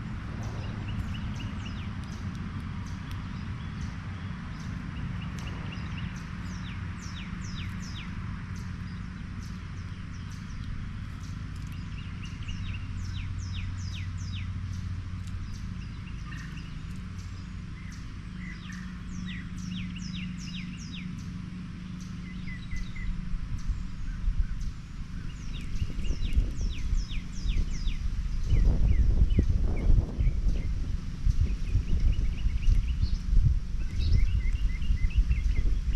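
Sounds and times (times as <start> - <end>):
low rumbling: 0.0 - 35.9
small birds chirping: 0.0 - 35.9
steady low hum: 0.0 - 35.9
bird trills: 0.4 - 30.7.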